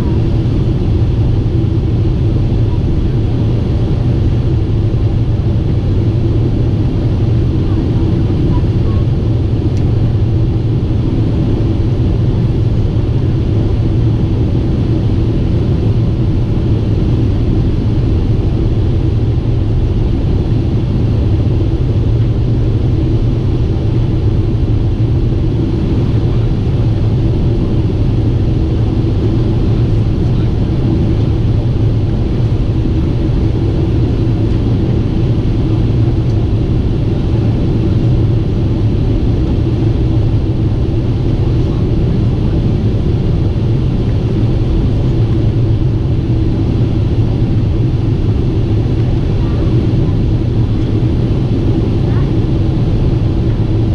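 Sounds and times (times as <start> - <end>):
airliner engines droning: 0.0 - 53.9.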